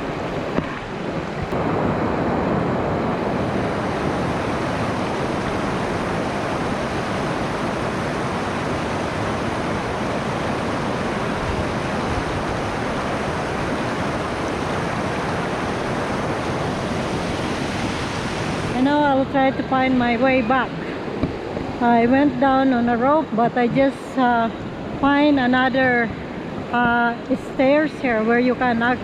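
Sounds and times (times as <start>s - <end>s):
water rushing over rocks: 0.0s - 29.0s.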